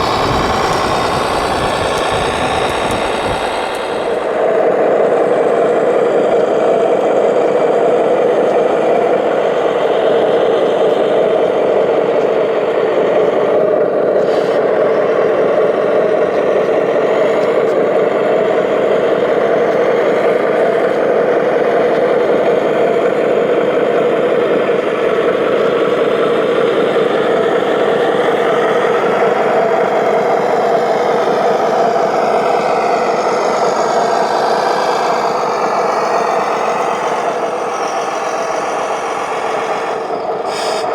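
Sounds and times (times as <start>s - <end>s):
radio-controlled machine motors running: 0.0s - 4.8s
high motor whine: 0.0s - 40.9s.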